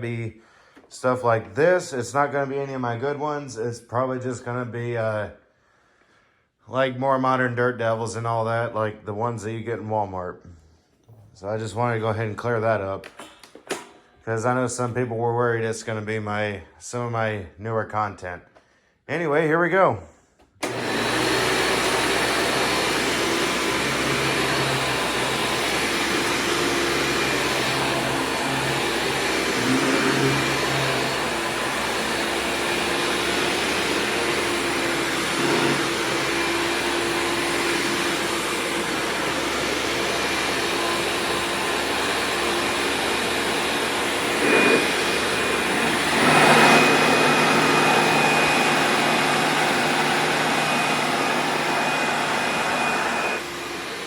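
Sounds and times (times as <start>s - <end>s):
upright vacuum cleaner running: 20.6s - 54.0s.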